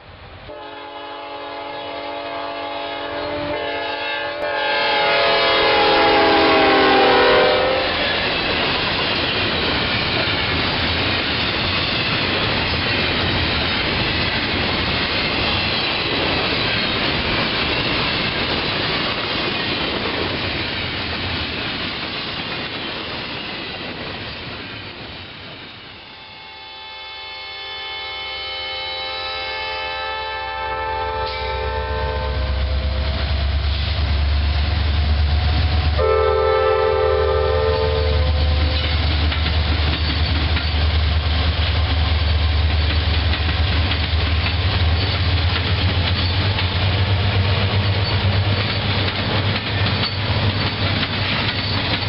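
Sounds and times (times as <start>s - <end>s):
locomotive air horn: 0.5s - 8.2s, 26.0s - 33.9s, 35.7s - 38.8s
freight cars rumbling and clattering: 38.5s - 52.0s.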